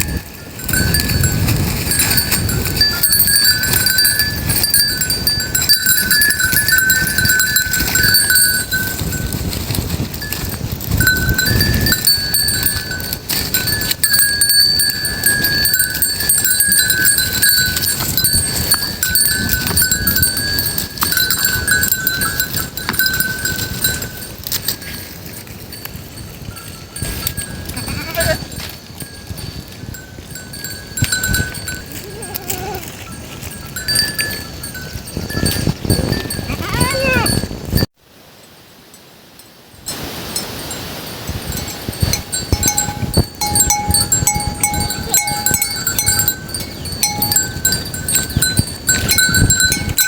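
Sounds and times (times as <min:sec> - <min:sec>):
goat bells clanking: 0:00.0 - 0:37.9, 0:39.9 - 0:50.0
goat bleats: 0:27.6 - 0:28.6, 0:31.9 - 0:33.0, 0:36.4 - 0:37.4.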